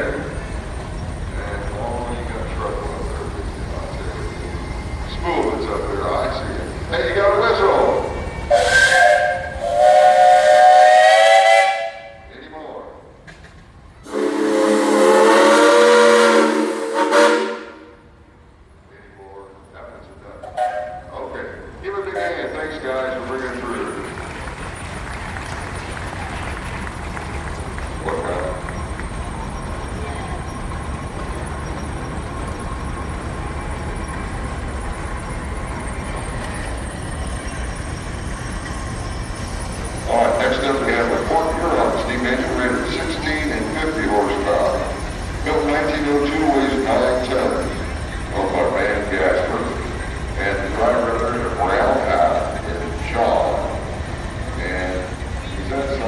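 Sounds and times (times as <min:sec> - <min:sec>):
steam engine rumbling: 0:00.0 - 0:56.0
steam whistle blasts: 0:08.5 - 0:12.3, 0:14.0 - 0:18.1, 0:20.5 - 0:21.1.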